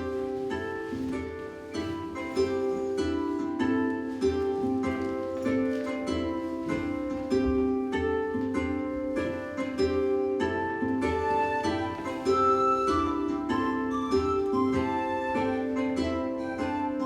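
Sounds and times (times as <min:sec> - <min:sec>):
plucked string instrument melody: 0:00.0 - 0:17.0.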